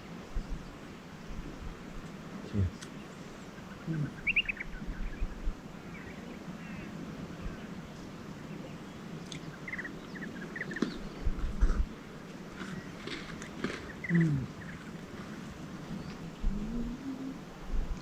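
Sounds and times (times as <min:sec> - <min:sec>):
birds chirping: 0:00.0 - 0:17.6
outdoor background noise: 0:00.0 - 0:18.0.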